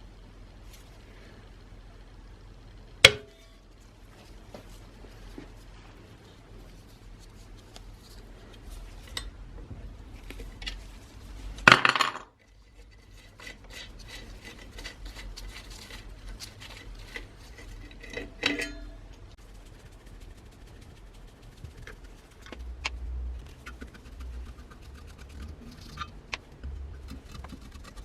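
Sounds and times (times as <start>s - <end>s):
metal tools clinking on workbench: 18.0s - 19.0s
ringing metallic clink: 18.4s - 19.0s.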